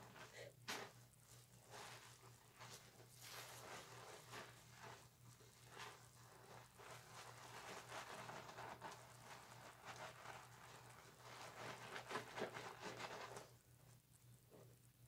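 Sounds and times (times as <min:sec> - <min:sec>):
loofah squishing on wet soap: 0:01.5 - 0:13.5.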